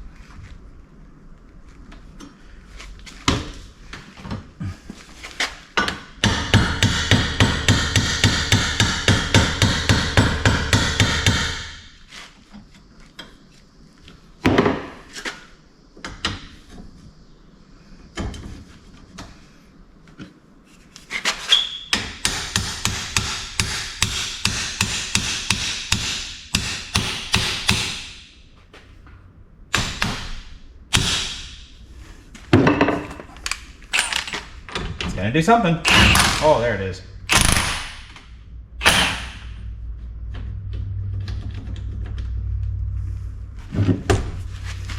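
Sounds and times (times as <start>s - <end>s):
hammer striking steel pipe: 22.3s - 28.2s.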